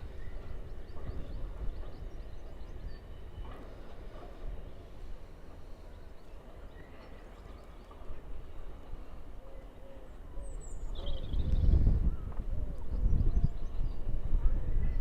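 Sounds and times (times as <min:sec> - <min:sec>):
wind buffeting microphone: 0:00.0 - 0:05.3, 0:10.2 - 0:15.0.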